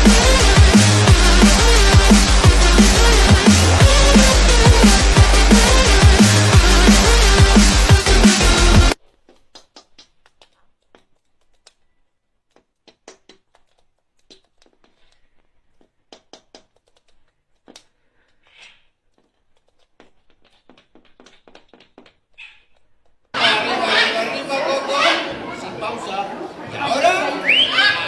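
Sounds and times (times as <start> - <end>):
electronic dance music: 0.0 - 9.0.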